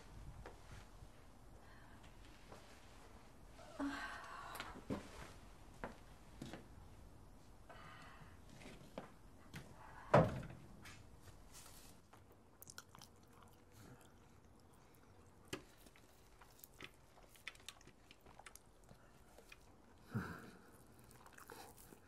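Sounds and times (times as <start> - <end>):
man chewing fried chicken: 12.4 - 19.8, 20.7 - 22.0.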